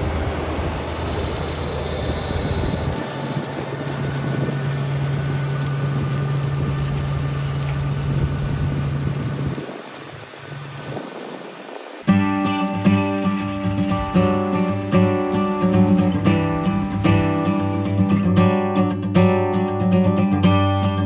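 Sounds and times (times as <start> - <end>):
diesel tractor running: 0.0 - 9.6
flail mower cutting grass: 0.0 - 21.0.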